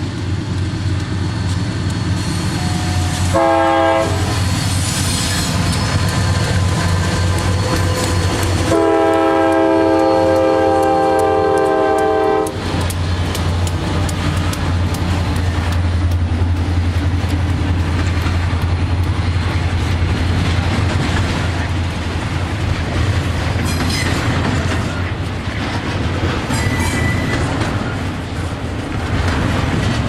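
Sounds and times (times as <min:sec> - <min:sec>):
train wheels clicking over rail joints: 0:00.0 - 0:30.0
locomotive air horn blast: 0:02.4 - 0:04.4, 0:08.6 - 0:12.6.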